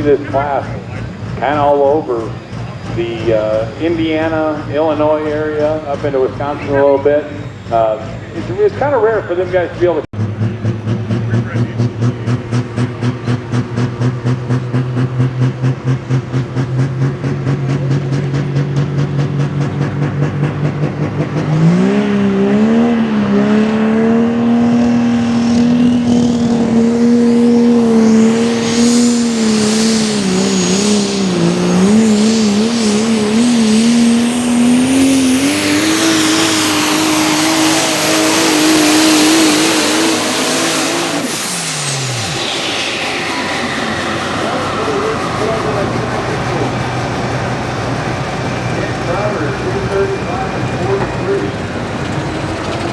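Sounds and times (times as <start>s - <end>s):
diesel truck engine revving: 0.0s - 52.9s
turbo whistle: 27.6s - 39.8s, 40.4s - 47.8s.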